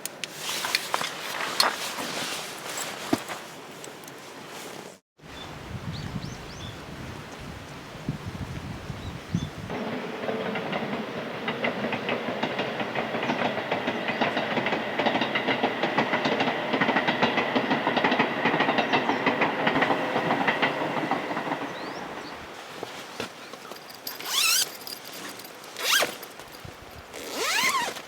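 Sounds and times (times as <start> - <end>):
train whine: 9.7 - 22.6
train wheels clicking on rails: 9.7 - 27.9.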